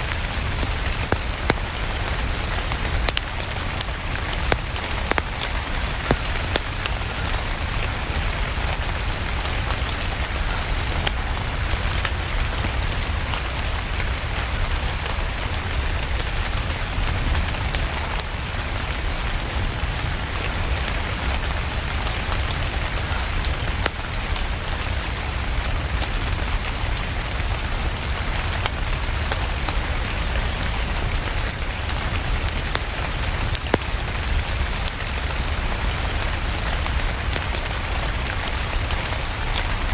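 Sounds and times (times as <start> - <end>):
rain hissing: 0.0 - 14.3
wood fire crackling: 0.0 - 14.5, 19.8 - 39.9.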